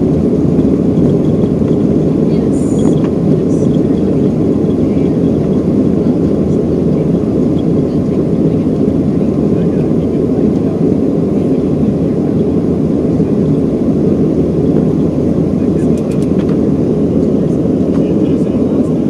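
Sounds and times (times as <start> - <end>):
jet engine roar in cabin: 0.0 - 19.0.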